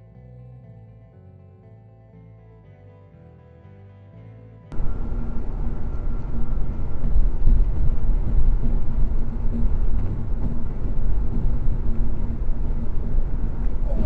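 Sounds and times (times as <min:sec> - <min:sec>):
vehicle driving rumble: 0:04.7 - 0:14.0.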